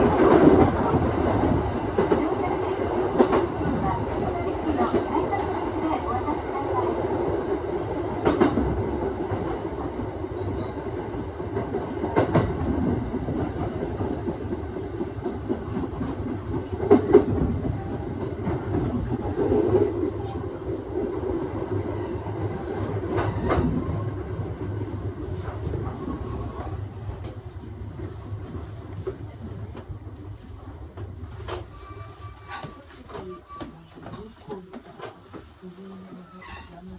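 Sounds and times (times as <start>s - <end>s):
train wheels rumbling on rails: 0.0s - 36.9s
clacks over rail joints: 11.5s - 20.1s.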